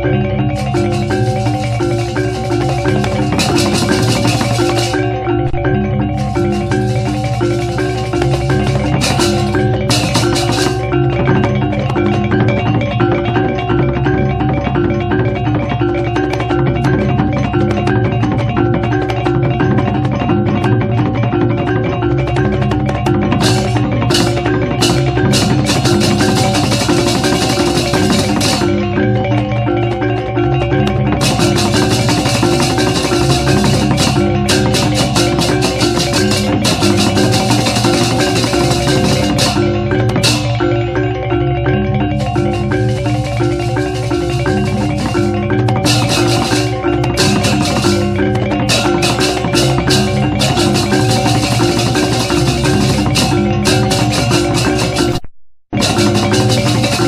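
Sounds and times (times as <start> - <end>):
drums: 0.0 - 57.0
gamelan music: 0.0 - 57.0
clashing cymbals: 0.6 - 11.4, 23.4 - 29.0, 31.2 - 41.0, 42.2 - 55.1, 55.8 - 57.0
gongs striking: 42.1 - 55.2.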